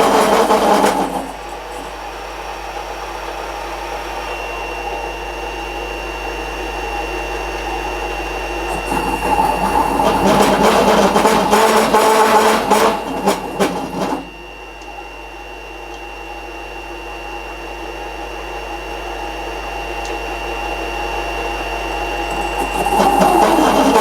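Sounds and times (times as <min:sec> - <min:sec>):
rough working noise: 0:00.0 - 0:03.2, 0:07.7 - 0:14.4, 0:22.2 - 0:24.0
workshop machine whine: 0:00.0 - 0:24.0.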